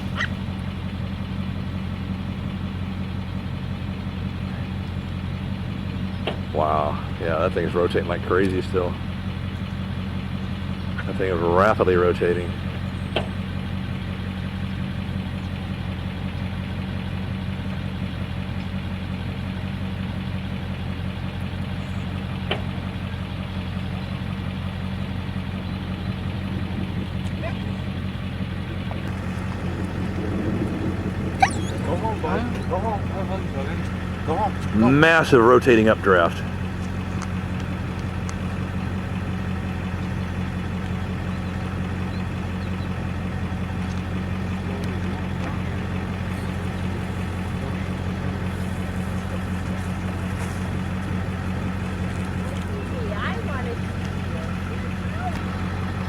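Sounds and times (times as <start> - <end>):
vehicle engine idling: 0.0 - 56.0.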